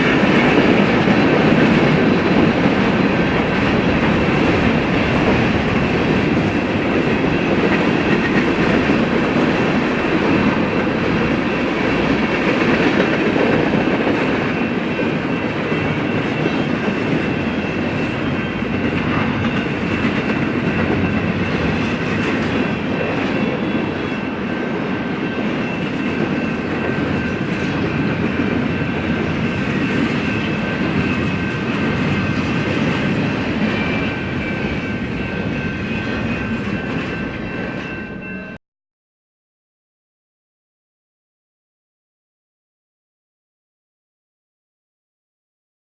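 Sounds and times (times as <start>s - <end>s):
train wheels clacking over rail joints: 0.0s - 38.3s.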